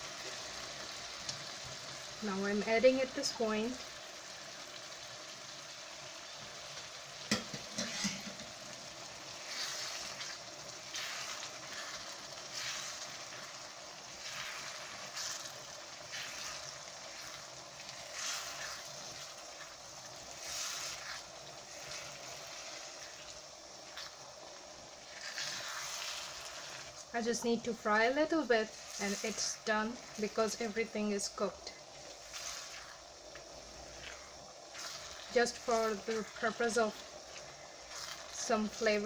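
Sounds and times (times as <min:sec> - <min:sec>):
lentils sizzling in pan: 0:00.0 - 0:39.0
spatula scraping pan: 0:07.3 - 0:08.6, 0:09.3 - 0:24.2, 0:25.0 - 0:39.0.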